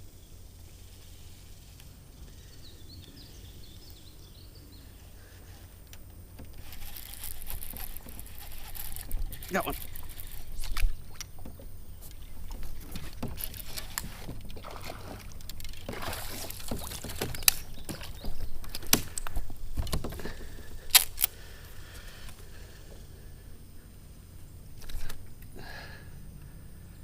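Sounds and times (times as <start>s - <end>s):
knocks and clicks on a kayak: 5.8s - 21.3s
water splashing: 6.4s - 20.6s.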